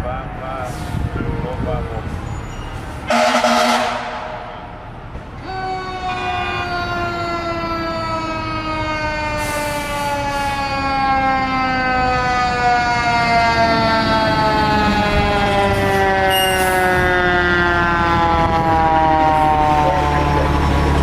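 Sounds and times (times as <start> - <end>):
fire engine siren: 0.0 - 21.0
truck engine running: 19.8 - 21.0.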